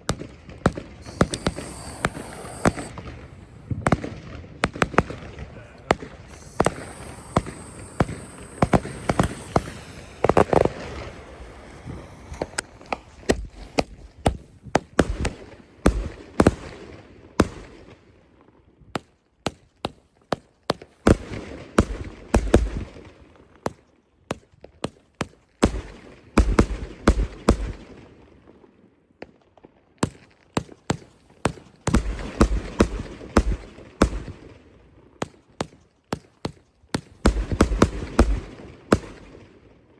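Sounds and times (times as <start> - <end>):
fireworks bangs and cracks: 0.0 - 14.0, 37.0 - 39.4
high firework hiss: 0.9 - 3.9, 4.8 - 15.0, 37.0 - 39.3.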